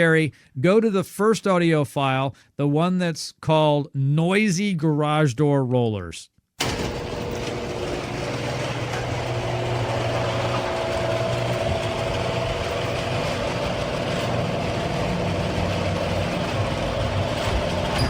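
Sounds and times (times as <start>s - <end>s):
garage door opener hum: 6.6s - 18.0s
garage door rattling and screeching: 6.6s - 18.0s.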